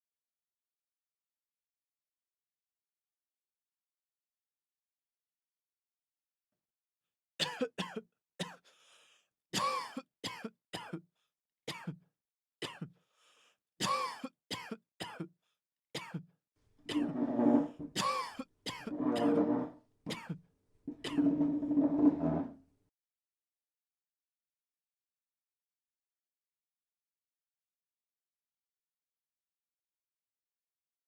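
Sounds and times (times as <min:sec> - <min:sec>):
person coughing: 0:07.4 - 0:08.6, 0:09.6 - 0:11.0, 0:11.7 - 0:12.0, 0:12.6 - 0:12.9, 0:13.8 - 0:15.3, 0:16.0 - 0:16.2, 0:18.0 - 0:19.0, 0:20.1 - 0:20.4.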